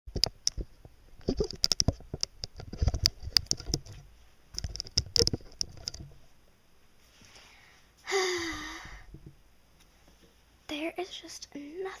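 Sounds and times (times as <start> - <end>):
rapid clicks and light taps: 0.1 - 6.2.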